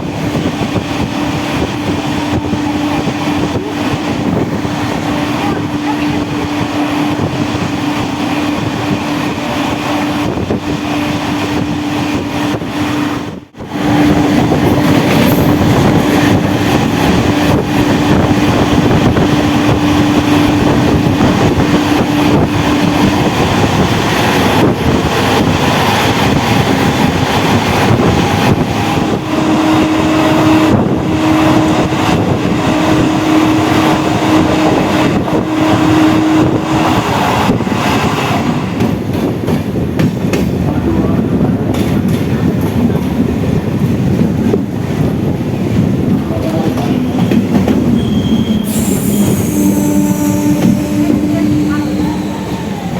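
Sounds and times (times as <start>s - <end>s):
train wheels clattering over rails: 13.8s - 52.9s.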